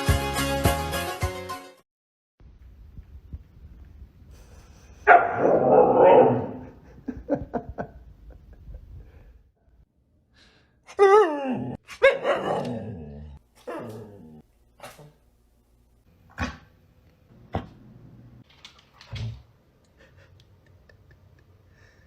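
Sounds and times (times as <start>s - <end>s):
dog barking: 5.1s - 6.6s, 11.9s - 12.8s.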